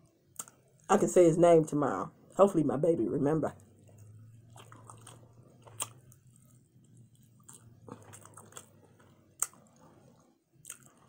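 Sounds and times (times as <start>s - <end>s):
person chewing food: 0.3s - 0.9s, 3.6s - 11.0s.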